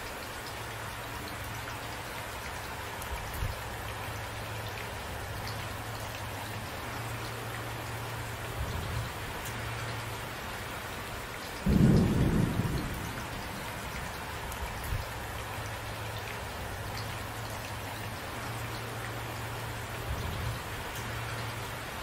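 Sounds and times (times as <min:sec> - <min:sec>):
rain falling: 0:00.0 - 0:22.0
thunder clap: 0:11.6 - 0:13.8.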